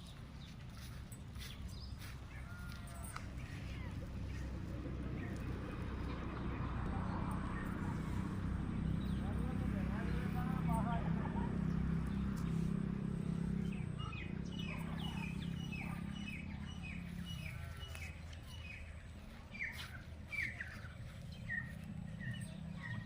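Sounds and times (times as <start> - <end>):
low steady rumble: 0.0 - 23.0
small birds chirping: 0.0 - 23.0.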